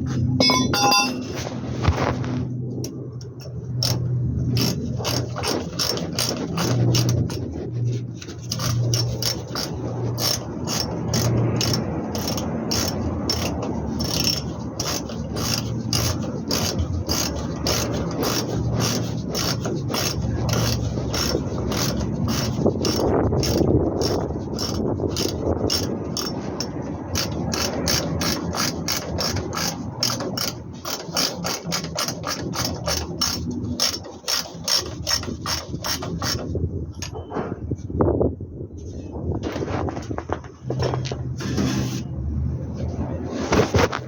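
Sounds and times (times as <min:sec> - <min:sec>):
ratchet wrench clicking: 0:08.5 - 0:26.4, 0:27.2 - 0:36.4.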